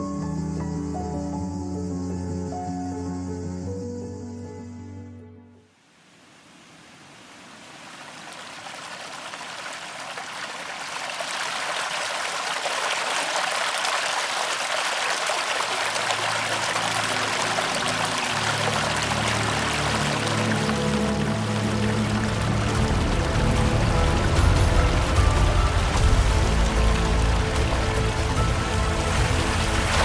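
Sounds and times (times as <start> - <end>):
rushing water: 5.9 - 30.0
low music notes: 16.0 - 30.0.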